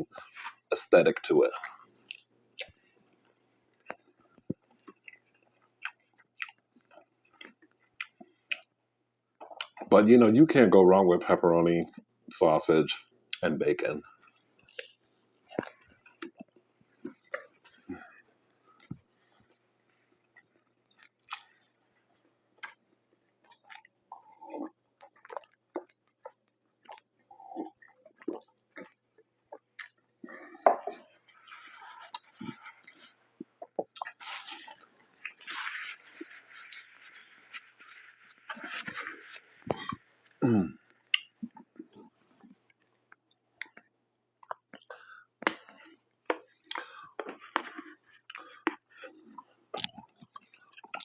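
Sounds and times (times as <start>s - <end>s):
chewing and biting pizza: 20.2s - 40.2s, 44.4s - 51.0s.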